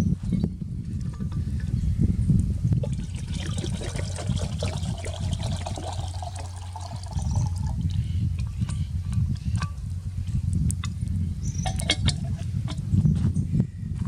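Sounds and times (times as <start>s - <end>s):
water trickling: 2.8s - 8.6s.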